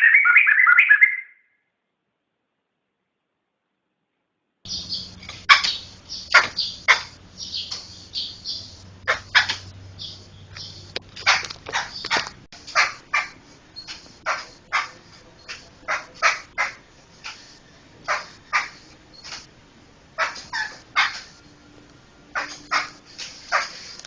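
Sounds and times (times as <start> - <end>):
bird calling harsh short notes: 4.7 - 17.4, 20.2 - 21.5.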